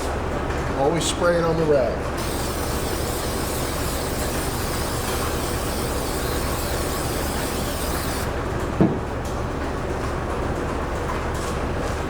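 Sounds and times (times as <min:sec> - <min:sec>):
low mechanical hum: 0:00.0 - 0:12.0
bright hiss: 0:02.2 - 0:08.3.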